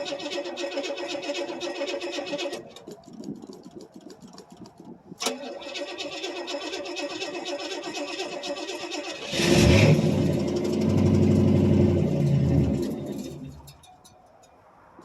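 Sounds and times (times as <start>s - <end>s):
starter motor cranking: 0.0s - 3.0s, 5.2s - 13.7s
car engine revving: 6.2s - 13.7s.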